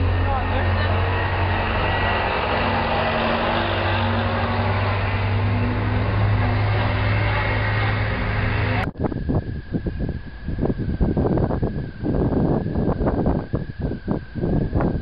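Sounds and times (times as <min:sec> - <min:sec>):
street noise: 0:00.0 - 0:09.6
engine humming: 0:00.0 - 0:15.0
wind buffeting microphone: 0:00.0 - 0:15.0.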